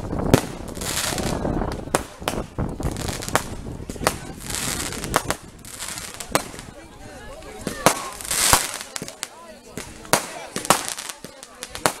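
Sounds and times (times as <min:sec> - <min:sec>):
bonfire burning: 0:00.0 - 0:12.0
fire cracks and pops: 0:07.7 - 0:12.0.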